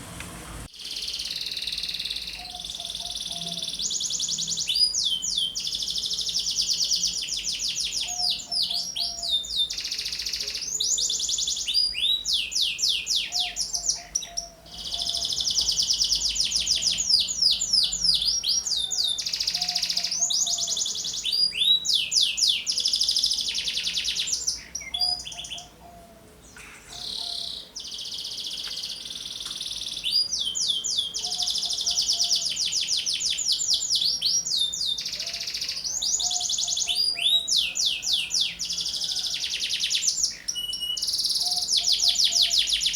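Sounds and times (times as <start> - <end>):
canary singing trills: 0.0 - 42.9.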